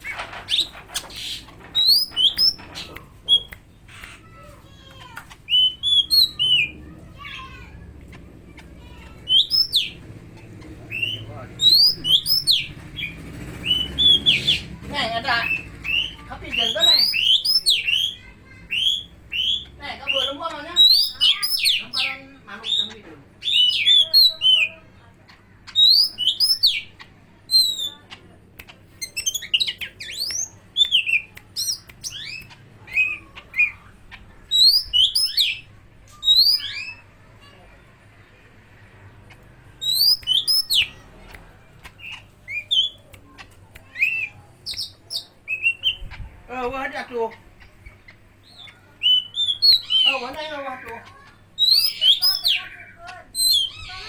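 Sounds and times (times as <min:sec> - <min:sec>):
bird singing whistled notes: 0:01.8 - 0:02.6, 0:05.5 - 0:06.7, 0:10.9 - 0:12.7, 0:39.8 - 0:41.0, 0:48.6 - 0:50.2
bird singing whistled phrases: 0:01.8 - 0:02.6, 0:03.3 - 0:03.6, 0:05.5 - 0:06.7, 0:09.3 - 0:10.0, 0:10.9 - 0:12.7, 0:15.4 - 0:22.1, 0:25.8 - 0:26.9, 0:34.5 - 0:37.0, 0:39.8 - 0:41.0, 0:43.8 - 0:46.1, 0:48.4 - 0:50.2, 0:51.6 - 0:52.7.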